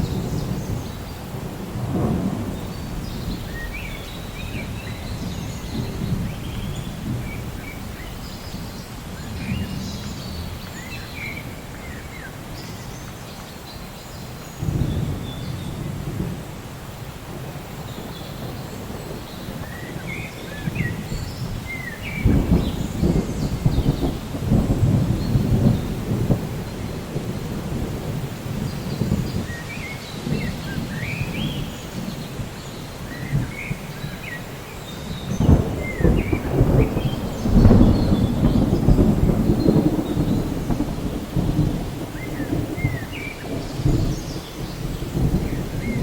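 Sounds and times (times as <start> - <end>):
rolling thunder: 0.0 - 12.7, 14.6 - 16.6, 17.2 - 34.4, 35.0 - 46.0
steady rain: 0.0 - 46.0
birds chirping: 17.8 - 27.6.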